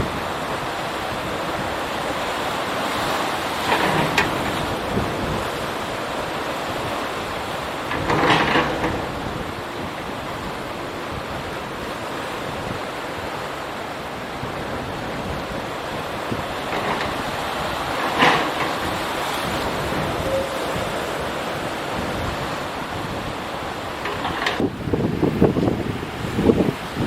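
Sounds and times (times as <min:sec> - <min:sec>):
sea water washing: 0:00.0 - 0:27.0
strong wind on microphone: 0:03.0 - 0:12.9, 0:14.2 - 0:27.0.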